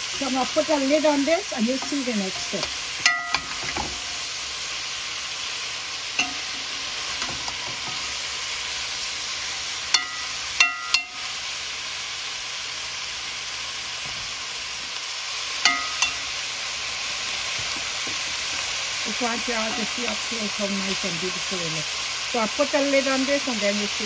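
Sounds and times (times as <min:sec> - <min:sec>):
food sizzling in a pot: 0:00.0 - 0:24.0
metal spoon clinking on pot: 0:03.0 - 0:03.9, 0:06.2 - 0:06.5, 0:09.9 - 0:11.2, 0:15.6 - 0:16.3.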